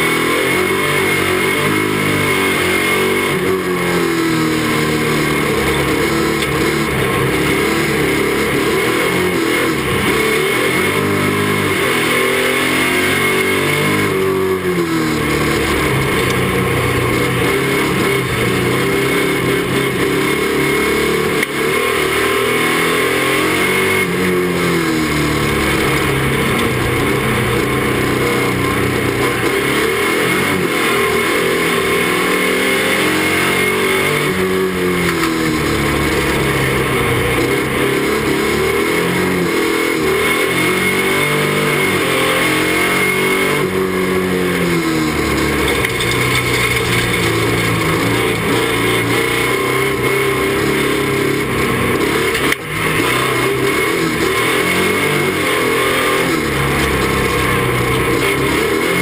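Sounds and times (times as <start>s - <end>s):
car engine revving: 0.0s - 59.0s
road noise: 0.0s - 59.0s.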